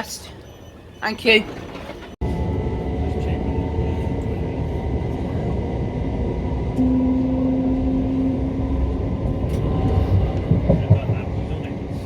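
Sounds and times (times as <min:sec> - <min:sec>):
electric train rumble and hum: 0:00.0 - 0:12.0
steady low tone: 0:02.2 - 0:12.0.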